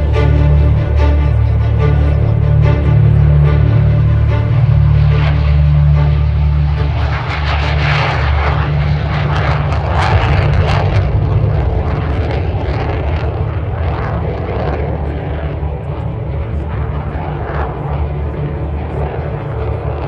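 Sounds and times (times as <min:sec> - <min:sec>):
jet aircraft flying past: 0:00.0 - 0:20.0
low rumble: 0:00.0 - 0:20.0.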